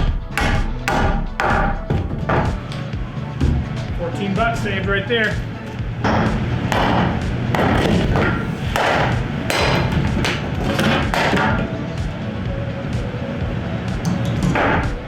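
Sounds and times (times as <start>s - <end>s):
heavy thuds on wooden boards: 0.0s - 11.7s.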